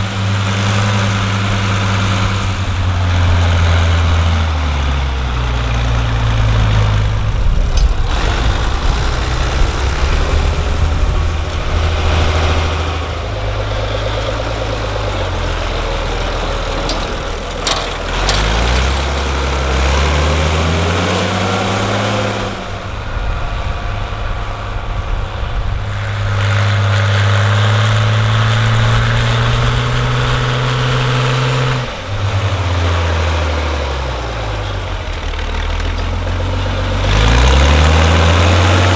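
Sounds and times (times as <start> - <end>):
tractor engines running: 0.0 - 38.9.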